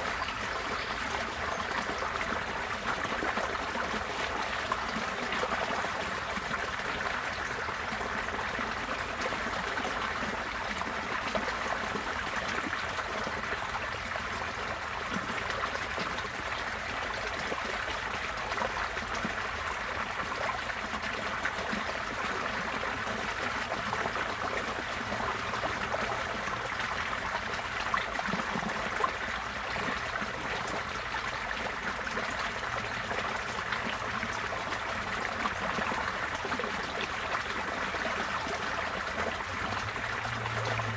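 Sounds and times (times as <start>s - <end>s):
floodwater rushing: 30.2s - 40.9s.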